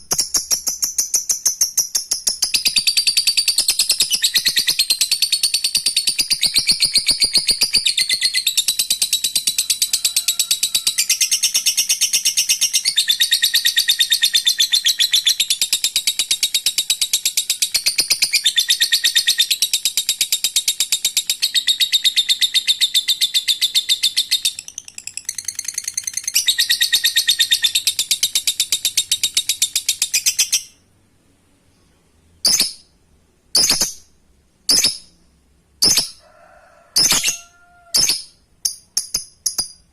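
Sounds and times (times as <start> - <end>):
lovebird chattering trill: 10.5 - 30.8.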